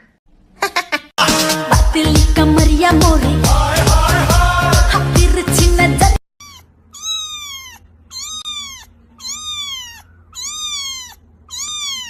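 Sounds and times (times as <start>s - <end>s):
cat meowing: 6.4s - 12.0s.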